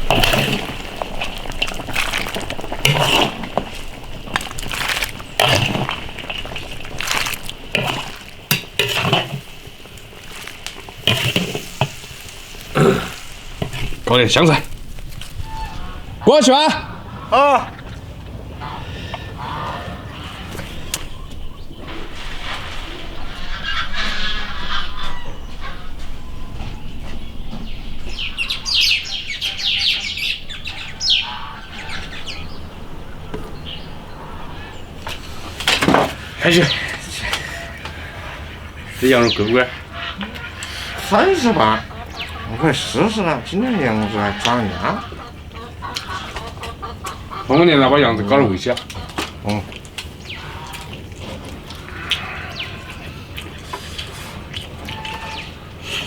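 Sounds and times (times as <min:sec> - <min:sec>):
utensil scraping a wok: 0:00.0 - 0:14.1
stew sloshing in a wok: 0:00.0 - 0:15.7
small birds chirping: 0:00.0 - 0:56.0.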